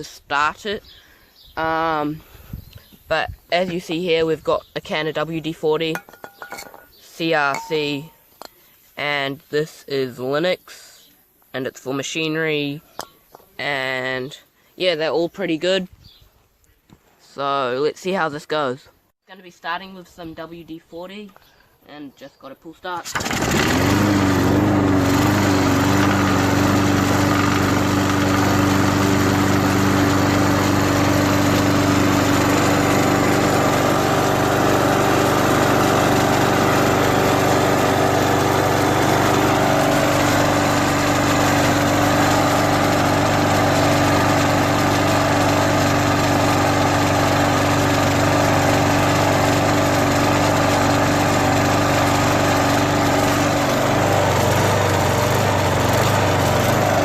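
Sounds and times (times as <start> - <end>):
lawnmower engine running: 5.4 - 8.1, 23.0 - 57.0.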